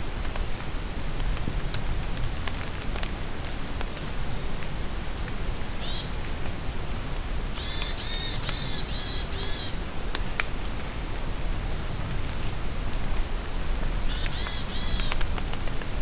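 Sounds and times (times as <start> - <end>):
rain falling in forest: 0.0 - 16.0
songbird singing: 3.8 - 6.5, 7.3 - 9.9, 14.1 - 15.2.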